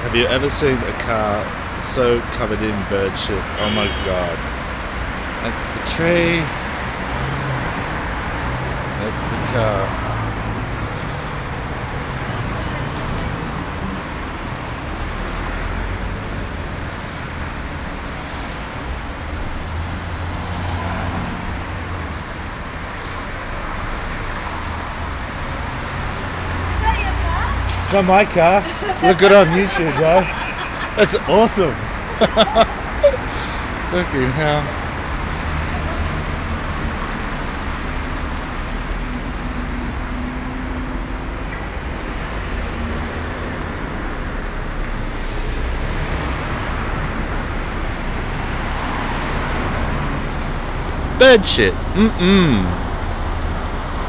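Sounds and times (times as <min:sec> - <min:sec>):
road traffic engine rumble: 0:00.0 - 0:54.0.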